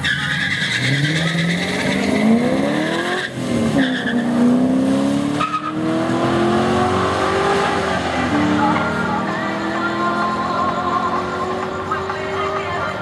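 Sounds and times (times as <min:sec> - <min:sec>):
tyre squeal: 0:00.0 - 0:04.4, 0:05.4 - 0:05.8
car engines at full throttle: 0:00.8 - 0:13.0.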